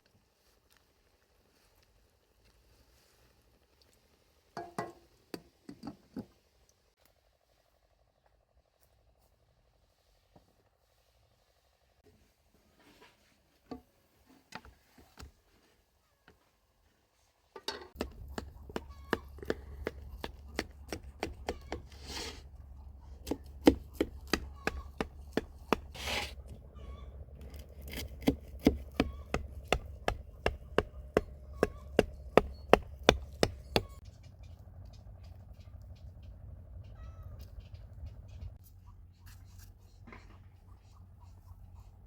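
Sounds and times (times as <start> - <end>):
scraping hisses: 21.9 - 22.5.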